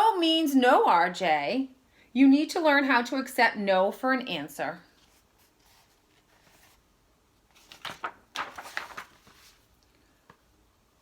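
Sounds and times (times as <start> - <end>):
book pages rustling: 4.9 - 10.4.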